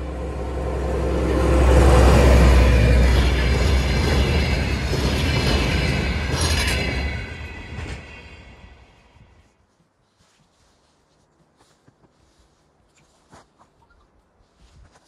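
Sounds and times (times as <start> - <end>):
train wheels rumbling over rails: 0.0 - 9.5
locomotive engine hum: 0.0 - 9.6.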